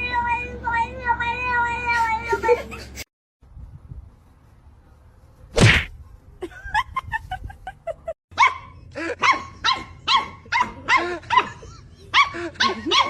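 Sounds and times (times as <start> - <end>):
dog barking: 8.4 - 13.0.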